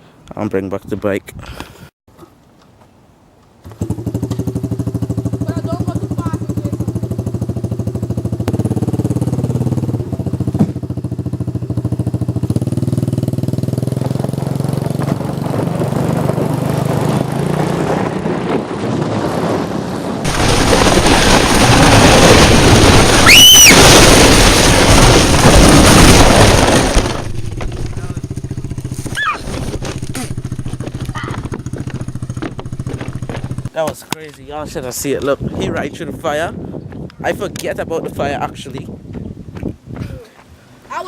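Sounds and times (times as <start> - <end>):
motorbike engine running: 3.8 - 15.6, 26.6 - 33.7
loud rushing noise: 18.9 - 29.9
rising and falling tone: 19.6 - 33.4.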